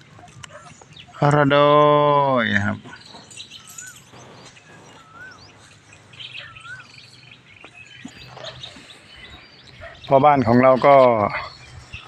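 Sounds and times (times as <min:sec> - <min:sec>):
faint bird chirps: 0:00.0 - 0:12.0
bird whistle rising and falling: 0:03.2 - 0:09.4.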